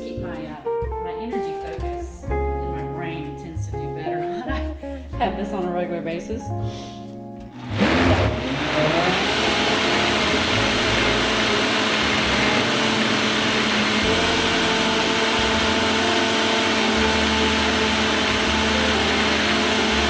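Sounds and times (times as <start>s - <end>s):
blender motor running: 7.5s - 20.0s.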